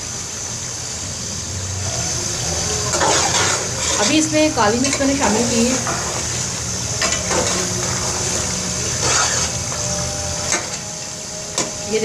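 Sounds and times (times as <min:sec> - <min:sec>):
meat sizzling in a pot: 0:00.0 - 0:12.0
spatula scraping and knocking pot: 0:07.0 - 0:10.8.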